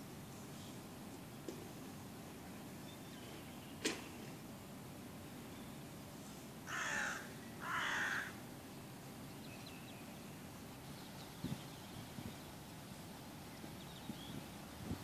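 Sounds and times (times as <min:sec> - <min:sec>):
bird harsh calls: 0:06.7 - 0:08.4.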